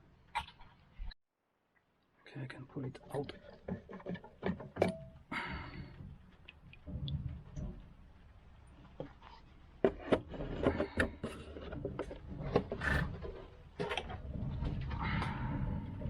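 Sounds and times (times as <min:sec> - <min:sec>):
fuel filter housing clicking and scraping: 0:08.8 - 0:16.0.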